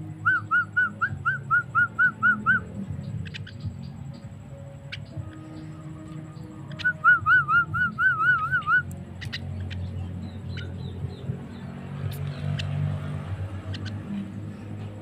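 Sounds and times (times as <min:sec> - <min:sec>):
bird warbling whistled trill: 0:00.2 - 0:04.2, 0:04.8 - 0:12.8
bird clicks and chirps: 0:02.4 - 0:04.3, 0:06.0 - 0:11.3, 0:12.0 - 0:14.2.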